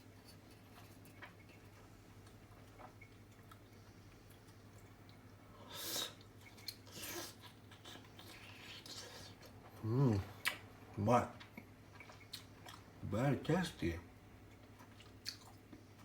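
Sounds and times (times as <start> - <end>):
faint eating clicks: 0.1 - 5.4, 10.4 - 13.0, 14.4 - 16.0.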